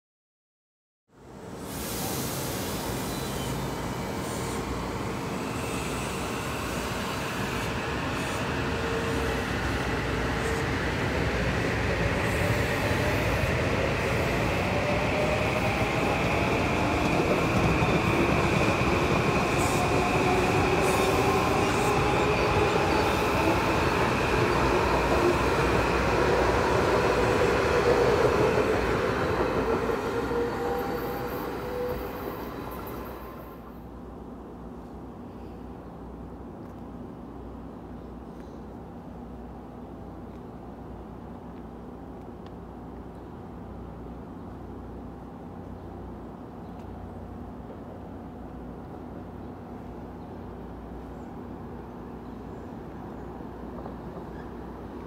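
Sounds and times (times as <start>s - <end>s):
train wheel and rail rumble: 1.1s - 55.0s
high wheel squeal: 2.6s - 4.7s.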